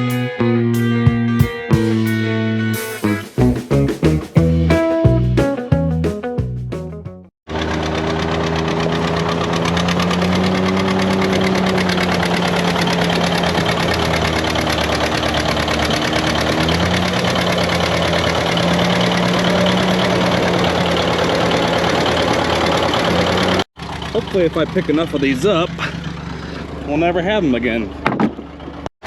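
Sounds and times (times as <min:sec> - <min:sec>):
tractor engine running: 0:07.5 - 0:28.9.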